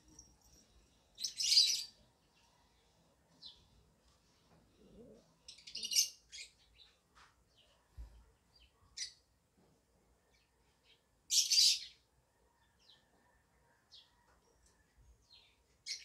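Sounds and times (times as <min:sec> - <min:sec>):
bird chirps and harsh calls: 0:01.2 - 0:02.0, 0:05.5 - 0:06.9, 0:11.3 - 0:12.0.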